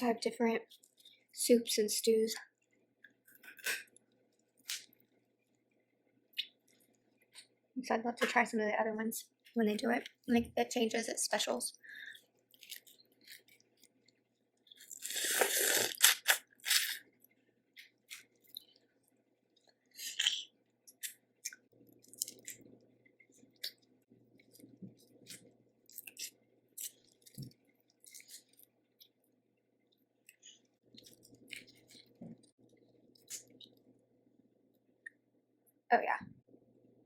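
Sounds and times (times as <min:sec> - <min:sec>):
chewing: 0:12.0 - 0:29.3, 0:29.9 - 0:34.0
crunching: 0:30.3 - 0:33.8.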